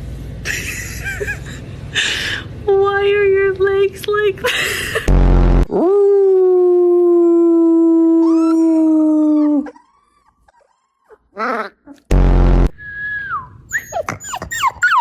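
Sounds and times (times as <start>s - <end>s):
puppy howling: 7.9s - 12.1s, 13.7s - 15.0s
puppy whining: 8.2s - 12.1s, 13.6s - 15.0s.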